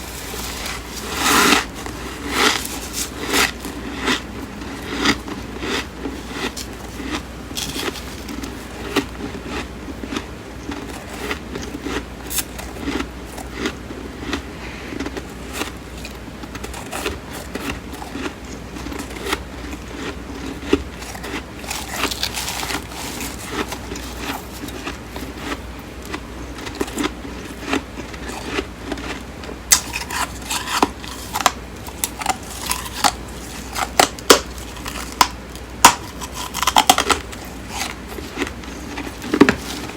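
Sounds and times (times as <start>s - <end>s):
chewing crunchy frost: 0.0s - 39.9s.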